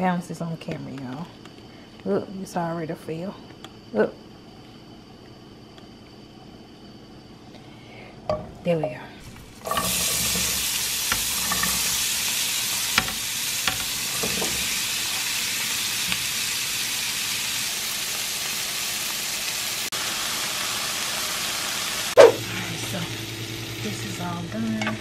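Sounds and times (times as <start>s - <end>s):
vegetables sizzling in a pan: 9.2s - 25.0s.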